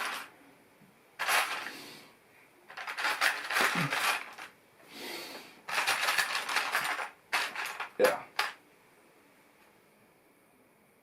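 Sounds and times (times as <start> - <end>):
plastic pieces rattling and clinking: 0.0 - 0.3, 1.2 - 1.8, 2.7 - 4.6, 5.7 - 8.6.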